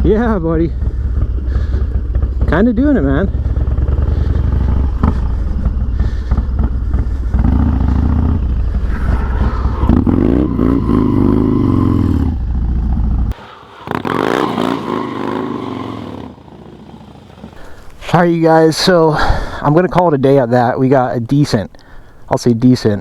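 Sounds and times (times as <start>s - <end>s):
motorcycle engine revving: 0.0s - 18.2s
lighter wavering engine: 13.3s - 18.0s.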